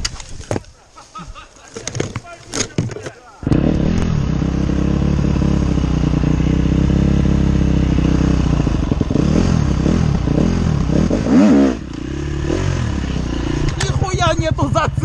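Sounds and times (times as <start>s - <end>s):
off-road motorcycle engine revving: 3.4s - 15.0s.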